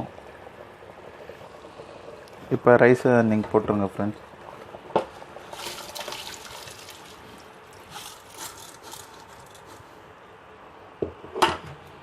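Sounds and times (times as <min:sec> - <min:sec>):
rice splashing into boiling water: 0:04.1 - 0:09.9.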